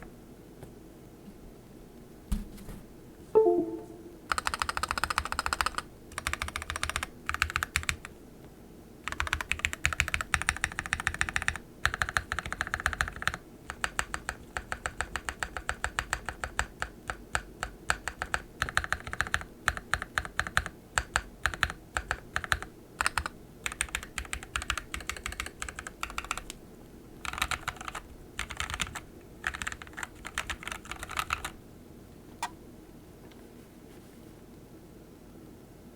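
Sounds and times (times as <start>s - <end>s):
mechanical keyboard typing: 4.3s - 8.1s, 9.0s - 26.6s, 27.2s - 31.6s.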